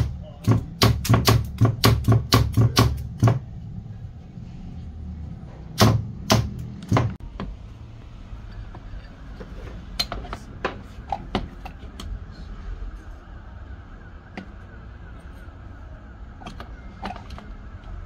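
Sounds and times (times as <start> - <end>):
steady low rumble: 3.0 - 16.4.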